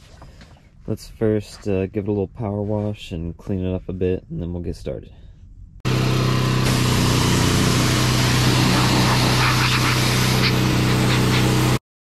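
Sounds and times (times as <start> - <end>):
pressure washer spraying: 6.0 - 11.8.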